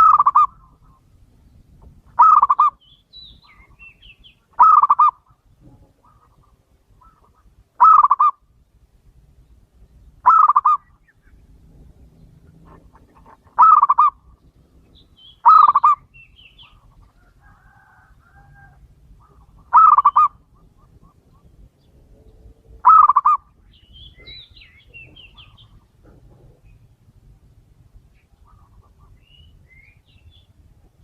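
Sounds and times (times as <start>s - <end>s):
dove cooing: 0.0s - 1.0s, 2.2s - 2.8s, 4.6s - 8.4s, 10.2s - 11.1s, 12.0s - 14.4s, 15.4s - 21.8s, 22.5s - 23.6s
small birds chirping: 0.0s - 31.0s.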